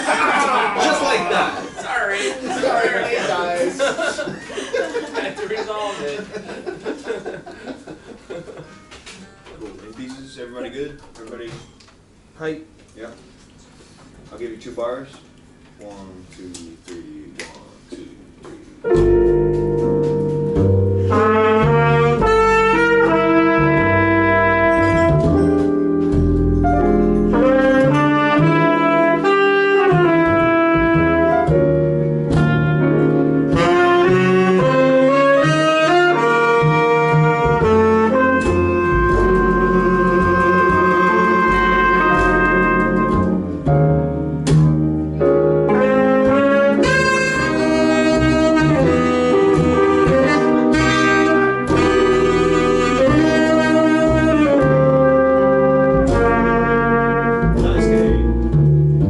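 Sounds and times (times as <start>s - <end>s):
jazz band playing: 0.5s - 4.0s, 18.6s - 59.0s
saxophone melody: 18.8s - 44.5s, 45.1s - 59.0s.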